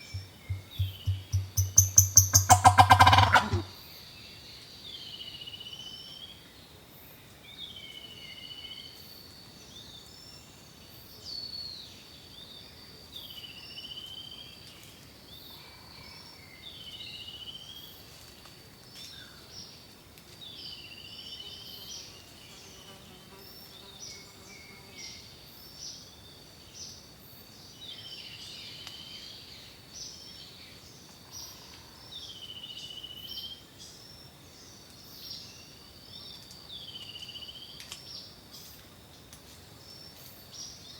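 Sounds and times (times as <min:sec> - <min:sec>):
bird chirps: 0:00.0 - 0:03.7
bird whistled call: 0:00.0 - 0:03.7.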